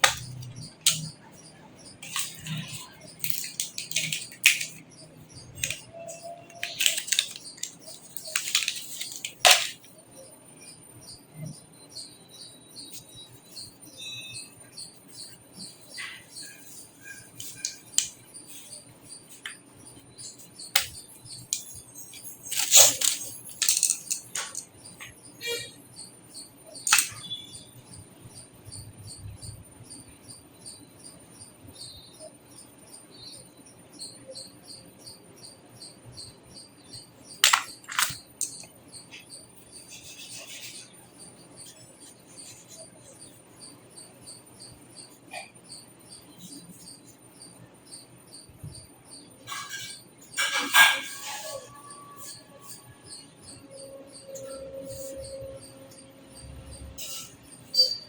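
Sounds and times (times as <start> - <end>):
sharp clicks: 0.0 - 1.1
cricket chirping: 0.0 - 58.0
metallic clicks and clinks: 2.0 - 4.9, 5.5 - 9.9, 20.8 - 25.1, 37.4 - 38.7.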